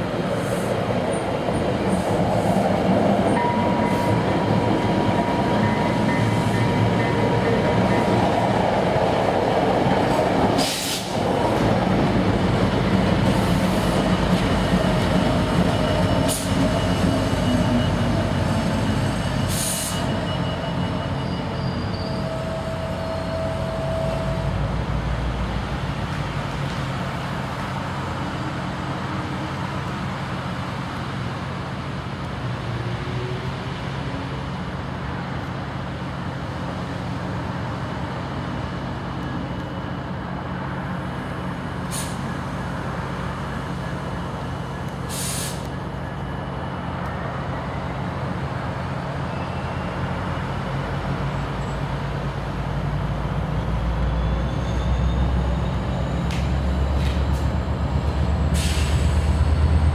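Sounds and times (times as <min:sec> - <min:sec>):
train wheels rumbling on rail: 0:00.0 - 0:59.9
faint wheel squeals: 0:18.8 - 0:24.4, 0:54.0 - 0:57.2.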